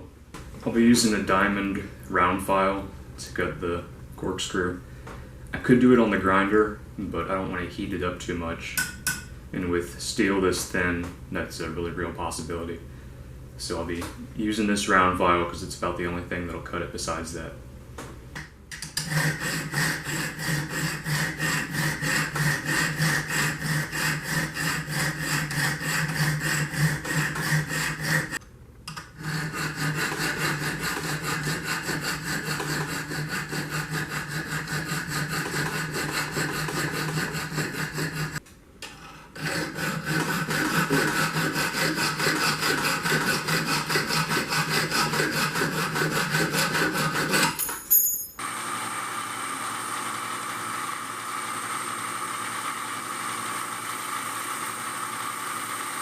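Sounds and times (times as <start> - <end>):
file sawing through steel: 18.9 - 38.4, 39.1 - 48.2.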